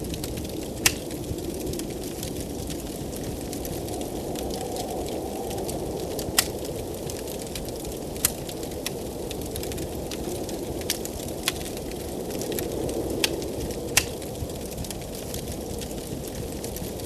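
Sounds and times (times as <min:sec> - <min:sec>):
blizzard wind rushing: 0:00.0 - 0:17.0
wood fire crackling and popping: 0:00.0 - 0:17.0.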